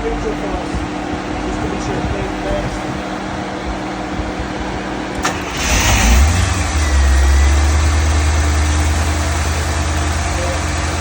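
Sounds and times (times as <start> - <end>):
car engine cranking and idling: 0.0 - 11.0
ignition click: 5.1 - 6.2.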